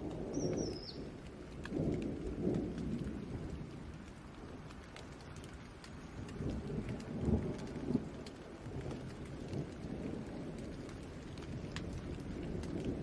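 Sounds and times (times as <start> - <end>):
distant thunder rolling: 0.0 - 4.6
raindrop ticks: 0.0 - 13.0
steady rain falling: 0.0 - 13.0.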